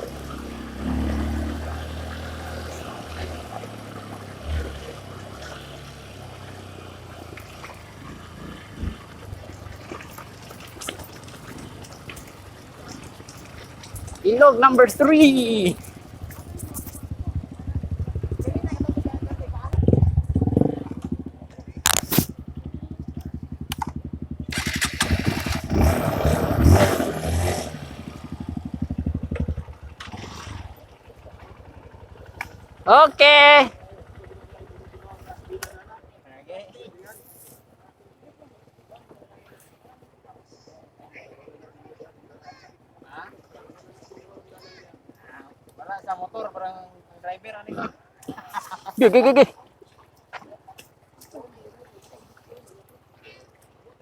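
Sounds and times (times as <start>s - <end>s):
water running and splashing: 0.0s - 19.8s, 24.3s - 35.6s
dirt bike engine running low: 0.0s - 36.2s.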